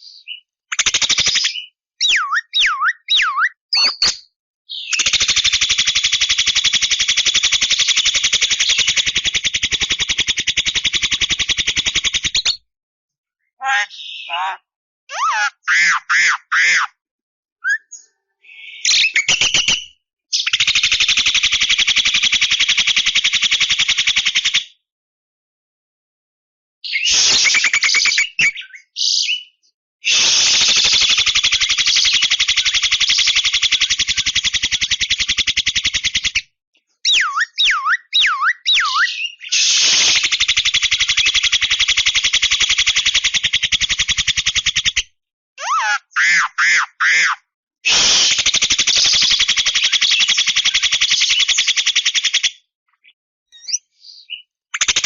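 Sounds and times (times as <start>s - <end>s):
myna calling: 13.6s - 16.9s, 45.6s - 48.4s
bird giving harsh rattle: 47.9s - 51.7s.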